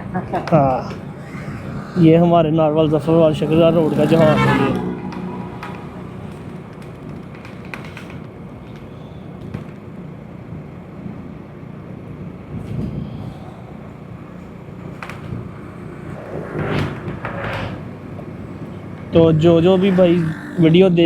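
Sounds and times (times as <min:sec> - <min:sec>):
road and wind noise: 0:00.0 - 0:21.0
loud rushing noise: 0:00.6 - 0:07.7, 0:15.8 - 0:20.8
motorcycle engine running: 0:02.8 - 0:08.6.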